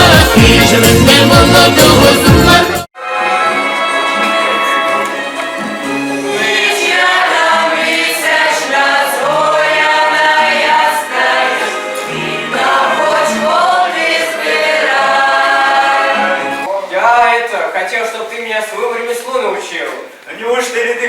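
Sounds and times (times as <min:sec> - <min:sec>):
group singing folk song: 0:00.0 - 0:04.5, 0:05.6 - 0:16.7.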